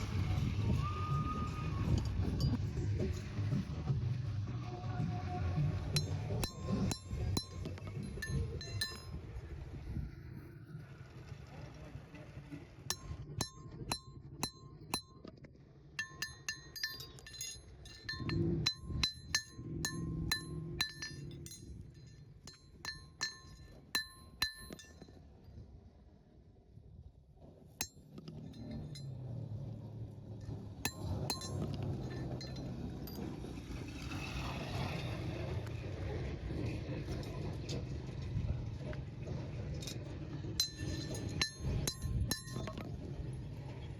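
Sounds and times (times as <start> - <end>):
low rumbling noise: 0.0 - 15.1
metal tools clinking: 5.9 - 9.3, 12.9 - 15.3, 16.0 - 25.2, 27.8 - 29.6, 30.4 - 33.9, 39.8 - 42.9.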